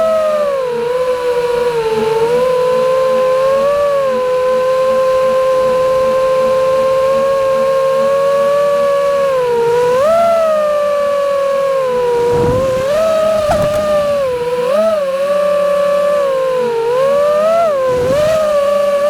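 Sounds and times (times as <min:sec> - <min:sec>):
drone motors and propellers whining: 0:11.8 - 0:15.1.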